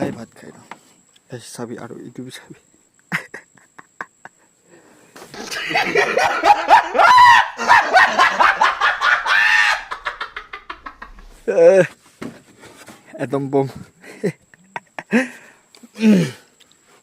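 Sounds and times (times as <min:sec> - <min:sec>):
animal cries: 0:08.8 - 0:10.5.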